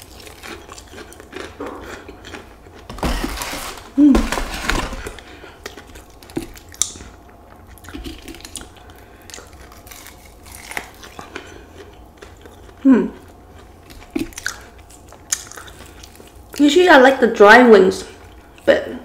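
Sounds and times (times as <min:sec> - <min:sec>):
person chewing crispy chicken: 0:00.0 - 0:16.6
person humming mm: 0:12.8 - 0:13.2.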